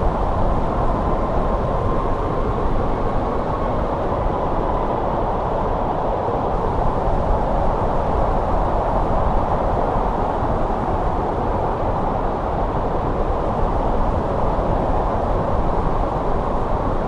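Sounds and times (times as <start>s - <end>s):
snowstorm wind blowing: 0.0s - 17.0s.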